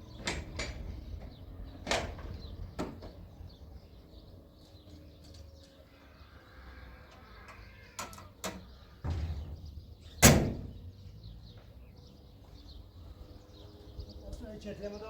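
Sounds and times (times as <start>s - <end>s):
door slamming shut: 8.0s - 10.8s.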